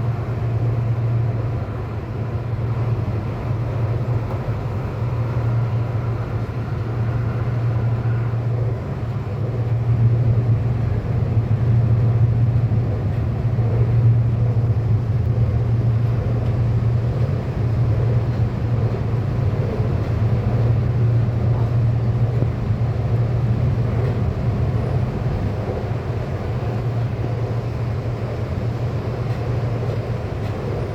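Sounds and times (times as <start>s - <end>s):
train wheels rumbling: 0.0s - 30.9s.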